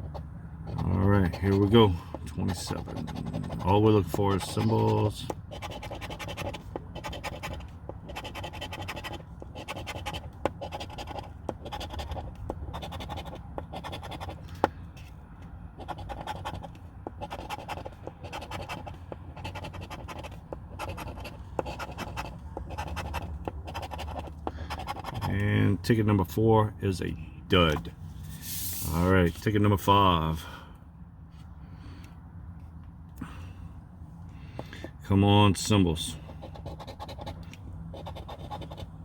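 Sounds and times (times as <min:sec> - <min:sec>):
scratch-off ticket being scratched: 0:00.0 - 0:14.7, 0:15.8 - 0:25.5, 0:36.3 - 0:39.0.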